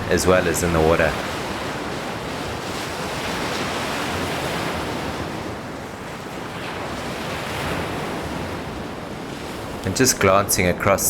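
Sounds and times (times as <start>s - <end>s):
wind buffeting microphone: 0.0s - 10.4s
sea surf washing in: 0.0s - 11.0s.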